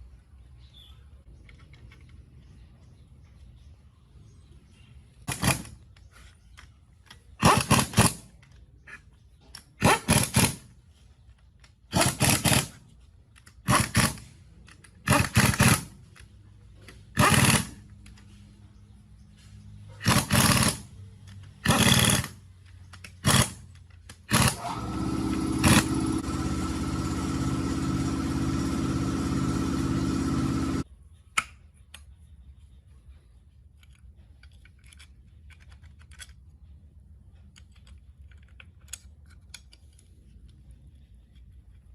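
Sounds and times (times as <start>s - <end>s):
small power tool motor: 15.0s - 16.0s, 17.1s - 18.4s, 20.0s - 20.9s, 21.6s - 22.4s, 23.1s - 23.6s, 24.2s - 30.8s.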